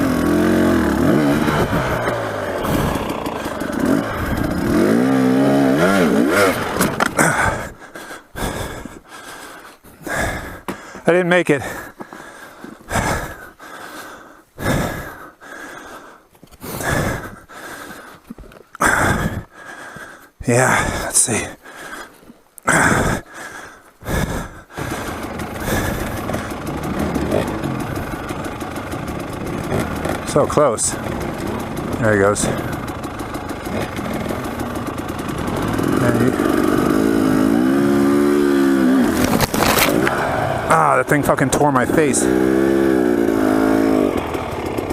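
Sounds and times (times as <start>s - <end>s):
dirt bike engine revving: 0.0s - 8.8s, 24.3s - 44.9s
person breathing hard: 1.4s - 4.8s, 7.2s - 28.6s.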